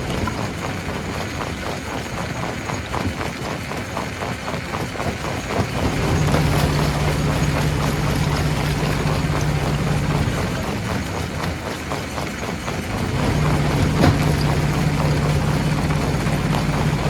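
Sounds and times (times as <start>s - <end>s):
steady low drone: 5.8s - 11.3s, 12.9s - 17.0s
stone crusher clattering: 13.0s - 17.0s.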